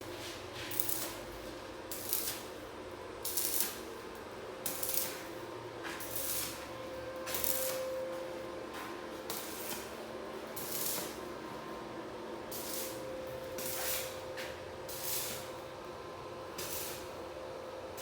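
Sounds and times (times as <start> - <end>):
arc welding crackling hisses: 0.7 - 2.6, 3.2 - 5.4, 6.0 - 6.7, 7.3 - 7.8, 9.2 - 11.2, 12.5 - 14.2, 14.8 - 15.6, 16.5 - 17.3.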